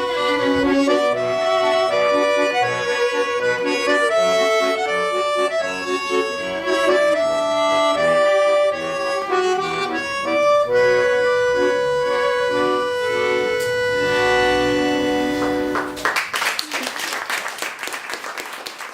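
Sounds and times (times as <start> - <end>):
accordion playing: 0.0 - 16.1.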